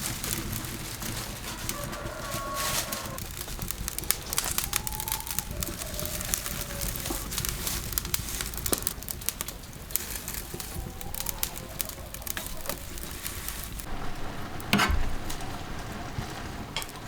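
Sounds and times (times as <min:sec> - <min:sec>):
crackling and clicking: 0:00.0 - 0:17.0
bird cooing: 0:01.4 - 0:03.2, 0:03.9 - 0:07.6, 0:10.2 - 0:13.9.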